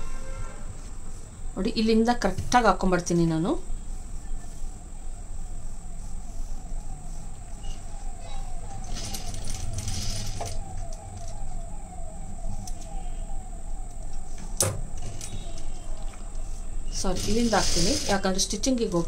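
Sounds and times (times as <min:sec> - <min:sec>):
sewing machine stitching: 0:17.0 - 0:18.3.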